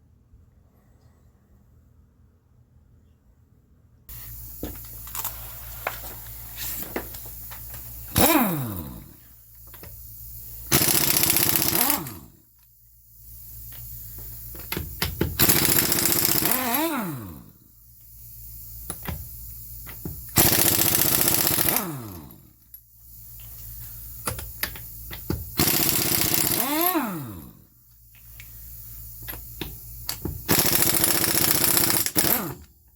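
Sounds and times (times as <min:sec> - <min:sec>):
motor winding down whine: 0:04.1 - 0:17.6, 0:19.9 - 0:22.4, 0:24.2 - 0:27.7, 0:28.4 - 0:32.7
impact wrench hammering: 0:04.2 - 0:05.2, 0:06.6 - 0:12.4, 0:13.6 - 0:17.5, 0:18.8 - 0:22.4, 0:24.2 - 0:27.5, 0:29.2 - 0:32.7.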